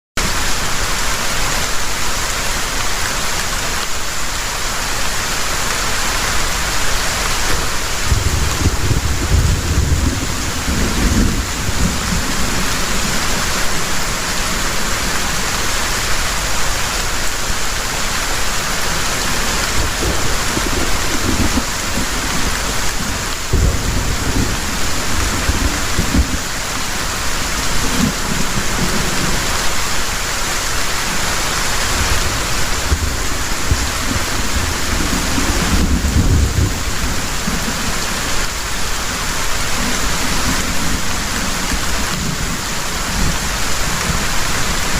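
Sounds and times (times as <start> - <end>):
heavy rain pouring: 0.2 - 44.9
thunder rumbling: 6.3 - 16.1, 19.0 - 44.9.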